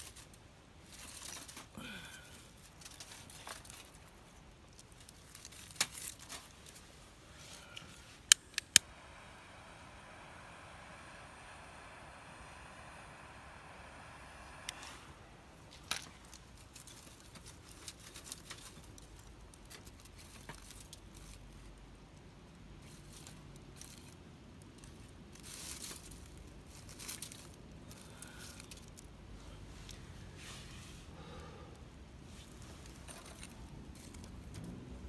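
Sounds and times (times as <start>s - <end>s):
fire hissing: 6.9s - 16.6s
wood fire crackling and popping: 7.6s - 12.4s.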